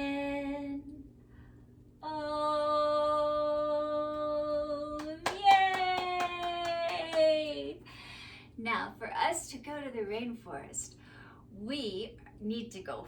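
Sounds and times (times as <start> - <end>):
quick hand claps: 5.0 - 7.6.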